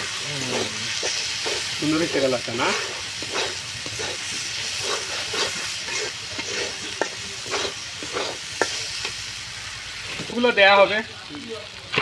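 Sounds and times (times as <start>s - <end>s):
spatula scraping a pan: 0.0s - 9.2s
spice paste sizzling in oil: 0.0s - 12.0s.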